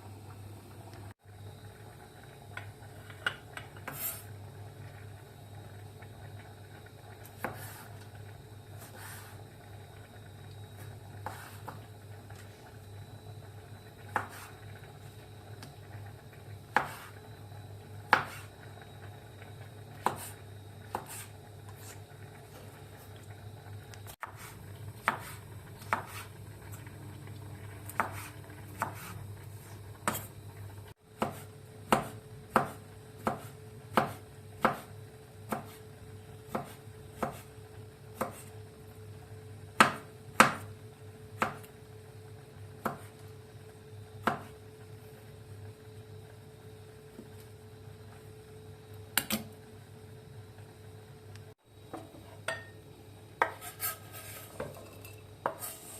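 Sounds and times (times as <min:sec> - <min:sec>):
knife chopping on cutting board: 0:14.1 - 0:14.5, 0:16.7 - 0:17.1, 0:18.1 - 0:18.5, 0:20.0 - 0:21.9, 0:24.2 - 0:26.3, 0:27.9 - 0:29.1, 0:30.0 - 0:30.3, 0:31.2 - 0:34.9, 0:35.5 - 0:35.8, 0:36.5 - 0:37.5, 0:38.2 - 0:38.4, 0:39.8 - 0:40.7, 0:42.8 - 0:43.1, 0:44.2 - 0:44.5, 0:53.4 - 0:54.0.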